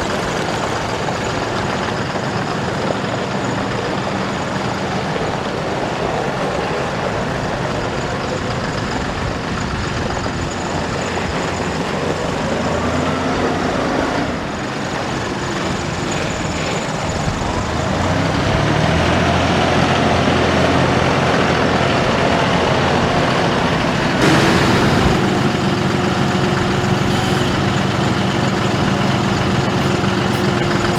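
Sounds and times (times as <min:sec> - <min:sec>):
tractor diesel engine running: 0:24.1 - 0:30.9
burst of hiss: 0:24.2 - 0:30.9.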